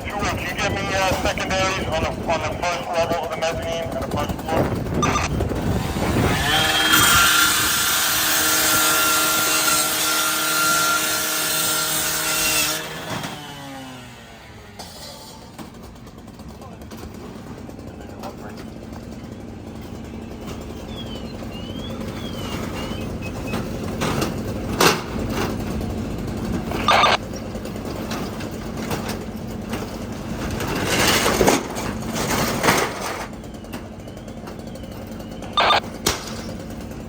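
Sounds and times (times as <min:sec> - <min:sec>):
fire truck engines humming: 0:00.0 - 0:11.4, 0:12.8 - 0:37.0
faint warbling siren tone: 0:05.0 - 0:05.4, 0:26.8 - 0:27.2, 0:35.4 - 0:36.0.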